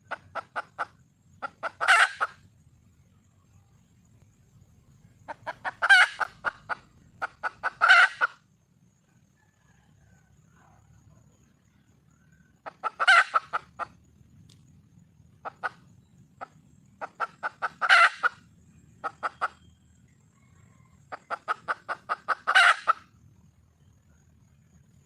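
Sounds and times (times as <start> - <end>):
hen clucking and calling: 0.0 - 2.5, 5.2 - 8.5, 12.5 - 14.0, 15.4 - 23.2
faint low hum: 0.0 - 25.0.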